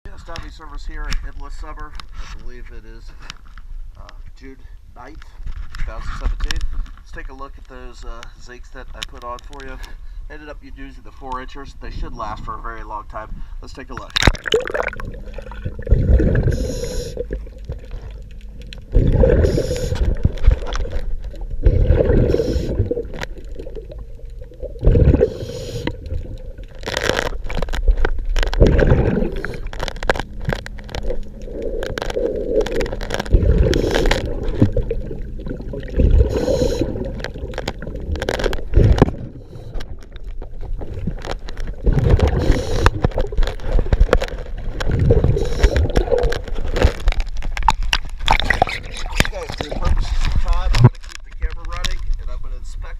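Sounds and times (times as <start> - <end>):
bubbles gurgling underwater: 14.0 - 50.9
regulator hissing: 16.4 - 17.4, 19.2 - 20.2, 22.1 - 23.0, 36.2 - 37.1.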